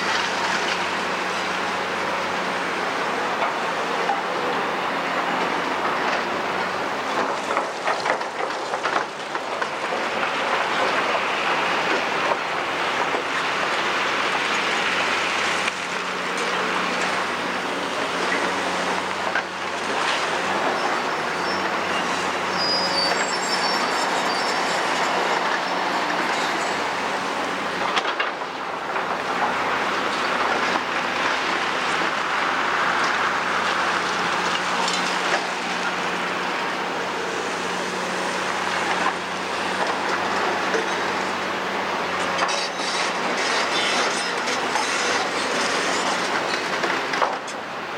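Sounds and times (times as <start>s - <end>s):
excavator diesel engine running: 0.0s - 47.9s
high metallic squeals: 20.8s - 25.8s, 42.4s - 46.6s.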